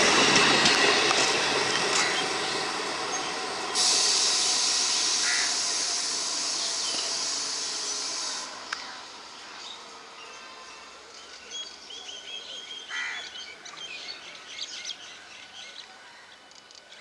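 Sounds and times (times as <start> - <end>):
steady high hiss: 0.0 - 11.8
train rumble: 0.0 - 15.8
crows cawing: 5.2 - 5.6.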